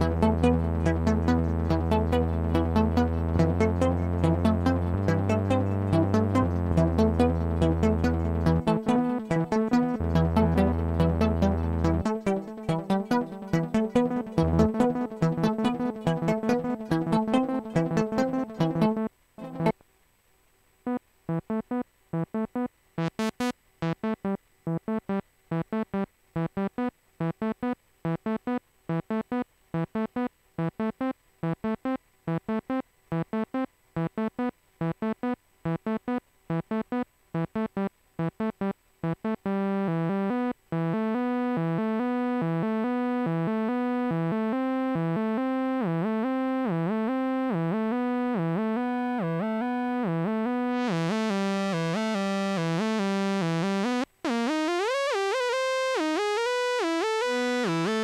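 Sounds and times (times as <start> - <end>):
synthesizer trance riff: 0.0 - 19.7, 21.3 - 56.4
held synth sound: 0.0 - 19.8.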